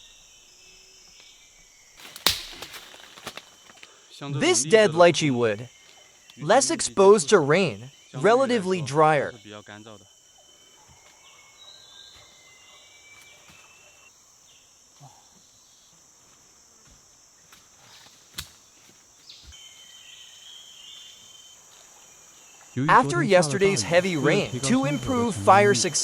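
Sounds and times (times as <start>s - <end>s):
high-pitched insect drone: 5.0s - 18.2s, 19.2s - 26.0s.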